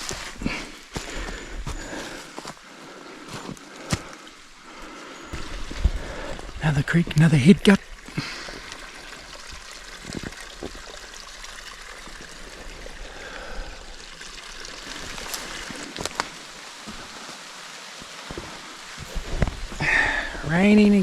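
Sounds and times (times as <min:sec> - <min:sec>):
creek trickling: 0:00.0 - 0:21.0.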